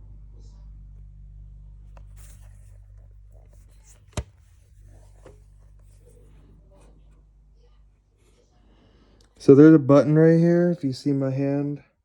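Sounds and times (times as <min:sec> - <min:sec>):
low steady hum: 0:00.0 - 0:12.0
handling noises: 0:02.0 - 0:07.0.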